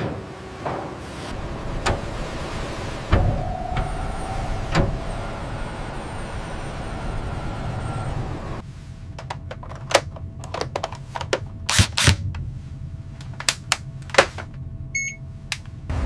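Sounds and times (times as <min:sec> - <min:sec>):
low steady hum: 0:08.6 - 0:16.0.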